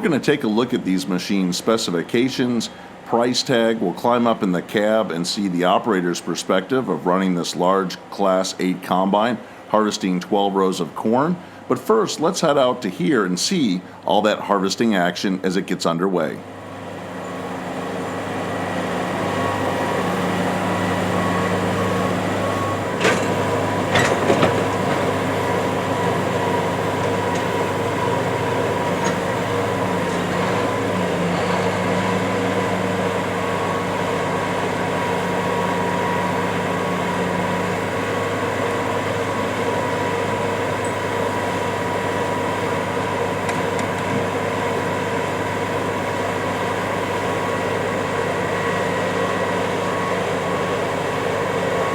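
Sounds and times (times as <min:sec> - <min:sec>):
combine harvester drone: 0:16.3 - 0:51.9.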